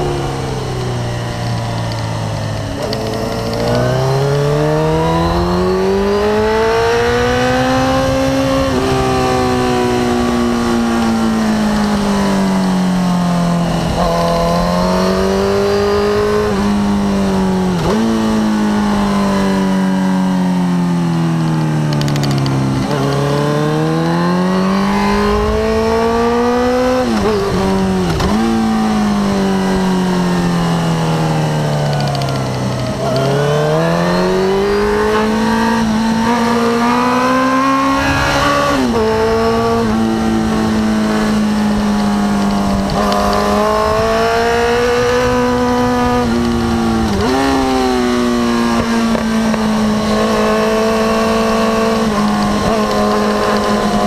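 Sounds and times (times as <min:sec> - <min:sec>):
motorcycle engine revving: 0:00.0 - 0:54.0
wind rush: 0:32.3 - 0:48.1.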